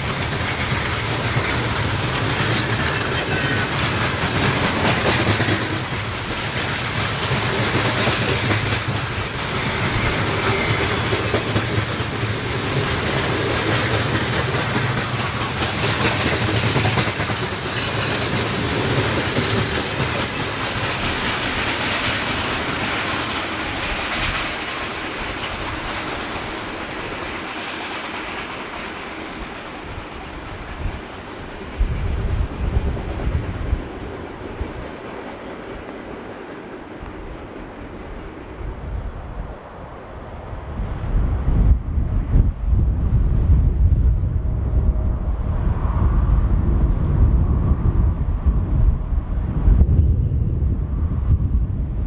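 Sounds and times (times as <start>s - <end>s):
train wheels clattering over rails: 0.0s - 38.8s.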